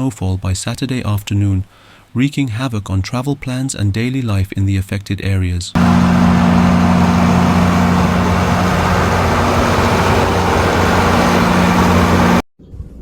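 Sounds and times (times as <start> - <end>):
heavy vehicle engine humming: 5.8 - 12.4
loud rushing noise: 5.8 - 12.4.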